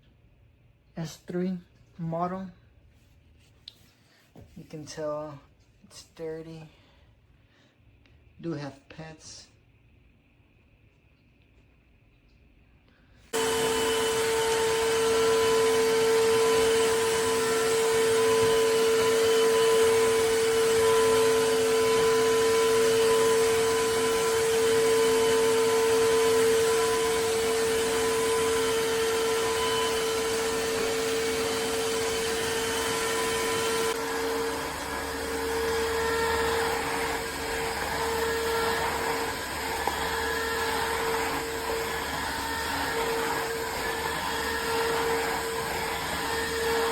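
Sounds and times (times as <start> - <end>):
vacuum mop motor running: 13.3 - 46.9.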